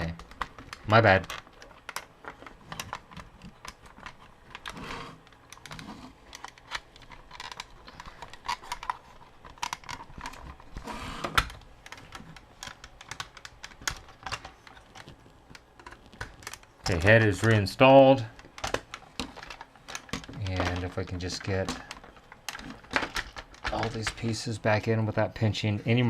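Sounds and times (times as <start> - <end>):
plastic toy parts clicking: 0.0 - 10.7, 11.3 - 17.6, 18.2 - 24.4.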